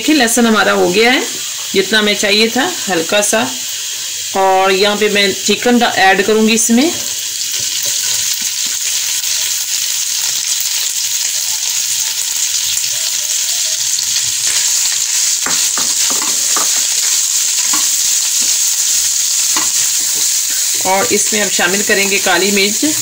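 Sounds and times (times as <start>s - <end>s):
oil sizzling with chicken: 0.0s - 23.0s
spatula scraping: 13.6s - 23.0s.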